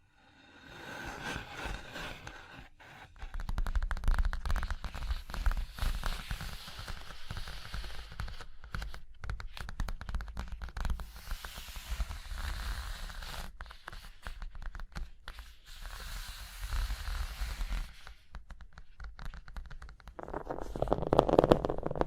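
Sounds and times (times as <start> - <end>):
tapping and scratching on objects: 18.0 - 22.0.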